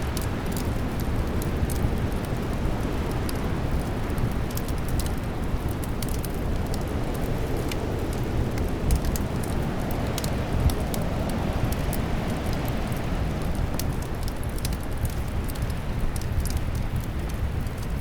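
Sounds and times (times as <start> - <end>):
fire pops and snaps: 0.0 - 18.0
fireplace fire crackling: 0.0 - 18.0
low rumble of wind: 0.0 - 18.0.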